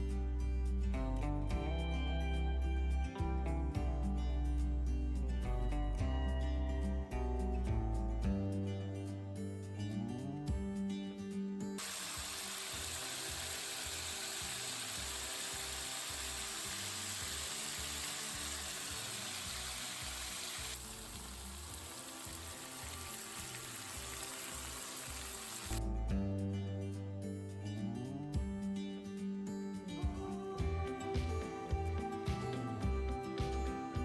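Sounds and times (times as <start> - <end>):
stir-fry sizzling in a hot pan: 11.8 - 25.8.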